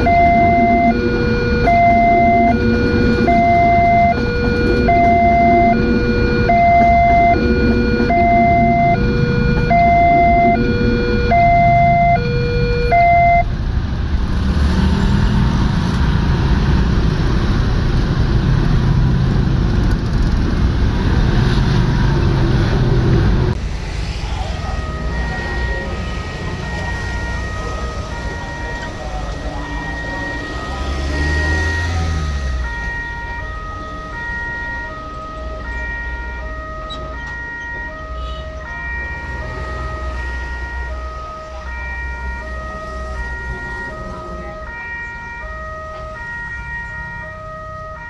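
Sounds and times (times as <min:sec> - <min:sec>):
higher tone pattern: 0:00.0 - 0:13.5
level-crossing alarm two-note tone: 0:00.0 - 0:13.5, 0:24.6 - 0:48.0
train rolling over crossing: 0:00.0 - 0:13.5.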